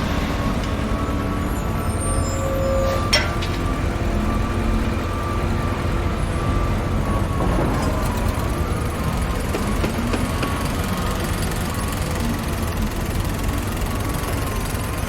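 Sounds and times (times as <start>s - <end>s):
heavy machinery engine rumble: 0.0s - 15.0s.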